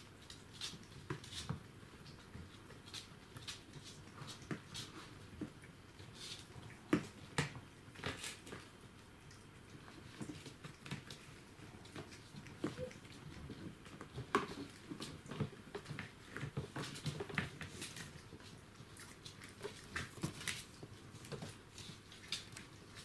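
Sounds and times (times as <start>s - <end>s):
puppies tapping and clicking: 0.0s - 23.0s.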